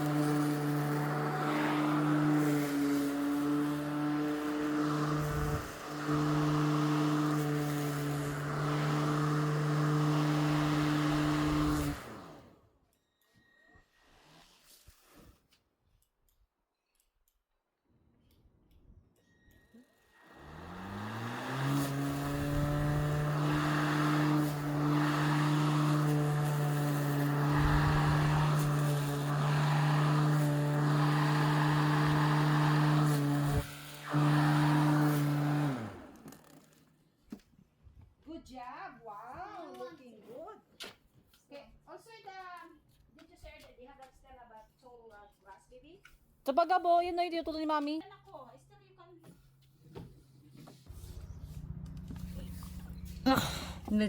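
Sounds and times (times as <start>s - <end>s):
electric lawn mower running: 0.0s - 12.6s, 20.2s - 36.8s, 50.9s - 54.0s.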